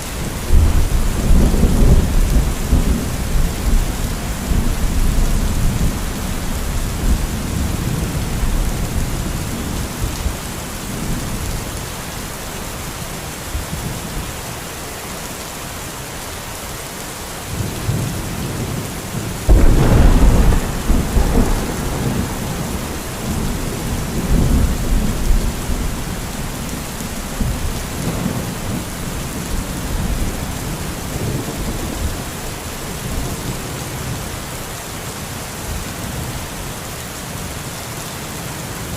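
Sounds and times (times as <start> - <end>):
steady rain hissing: 0.0 - 38.9
rolling thunder: 0.3 - 11.6, 19.2 - 33.6
loud thunderclap: 19.5 - 32.0.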